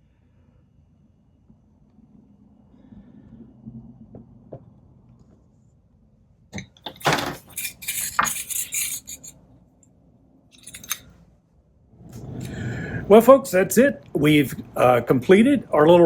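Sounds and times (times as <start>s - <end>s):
faint low hum: 0.0s - 16.0s
small metal parts clinking: 6.6s - 9.4s, 10.5s - 11.1s.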